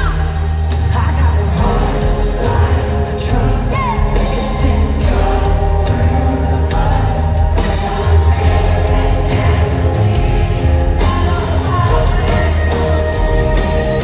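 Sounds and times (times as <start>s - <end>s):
live country band: 0.0s - 14.0s
woman singing: 0.0s - 14.0s.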